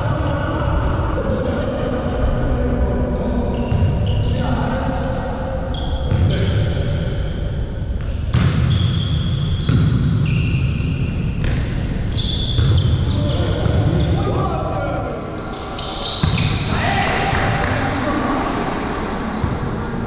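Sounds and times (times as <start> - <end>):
echoing hall rumble: 0.0 - 12.0, 12.6 - 20.0
shoe squeaks: 3.2 - 4.5, 5.7 - 14.3, 15.4 - 16.7.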